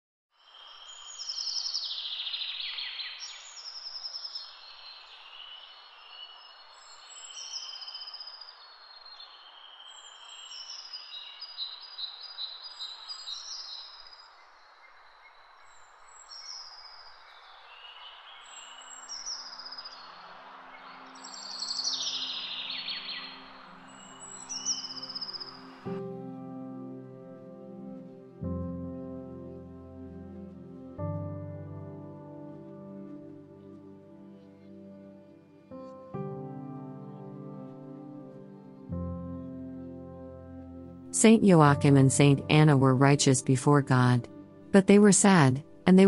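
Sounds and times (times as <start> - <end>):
songbirds singing: 0.4 - 26.0
background hiss: 0.4 - 46.0
soft low musical notes: 20.0 - 46.0.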